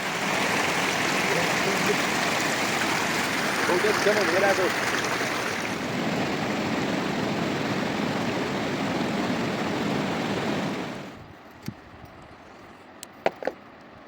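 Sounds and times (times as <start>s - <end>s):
rushing river water: 0.0s - 11.2s.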